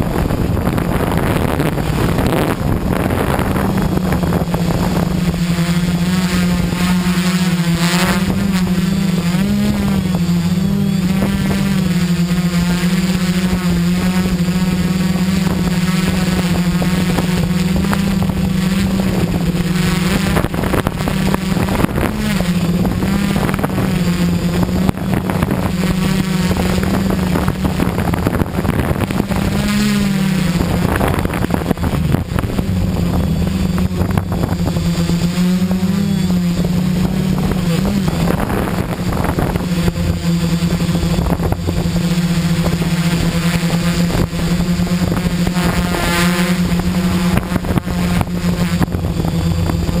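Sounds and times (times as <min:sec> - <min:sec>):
drone motors humming: 0:00.0 - 0:50.0
wind noise: 0:00.0 - 0:50.0.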